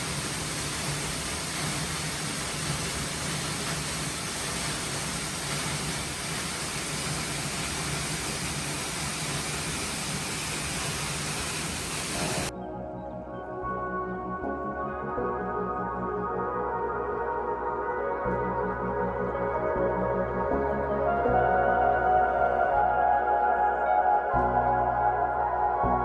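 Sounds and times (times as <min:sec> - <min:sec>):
waterfall rushing: 0:00.0 - 0:12.5.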